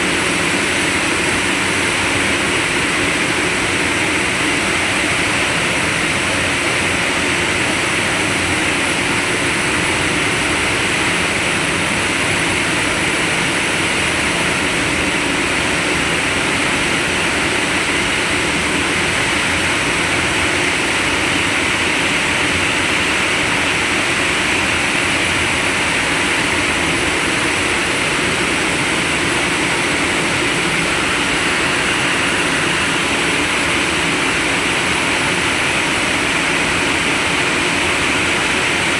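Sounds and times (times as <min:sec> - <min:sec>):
heavy machinery running: 0:00.0 - 0:38.9.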